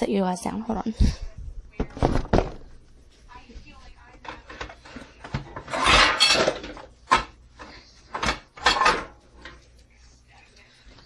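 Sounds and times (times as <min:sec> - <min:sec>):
pots and pans clattering: 0:04.2 - 0:09.6.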